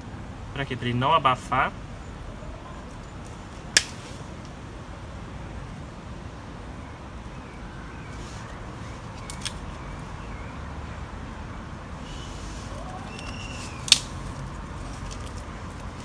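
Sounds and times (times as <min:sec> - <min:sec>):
campfire crackles: 0:00.0 - 0:10.4, 0:12.0 - 0:16.0
twig cracks: 0:03.8 - 0:04.1, 0:09.1 - 0:09.8, 0:12.7 - 0:16.0
low fire rumble: 0:11.0 - 0:16.0.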